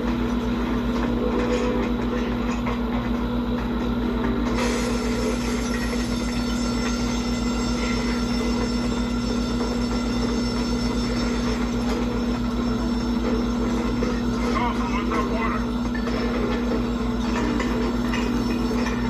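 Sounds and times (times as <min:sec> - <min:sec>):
steady mechanical drone: 0:00.0 - 0:19.0.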